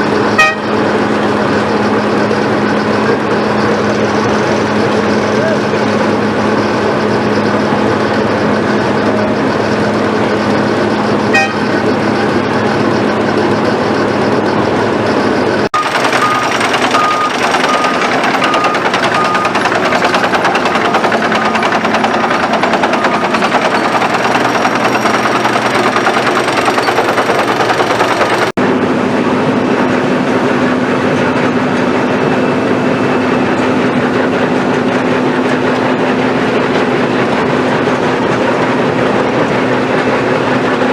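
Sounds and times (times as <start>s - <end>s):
milling machine diesel engine: 0.0s - 40.9s
even beeps: 0.4s - 0.8s, 11.1s - 11.9s, 12.8s - 28.5s.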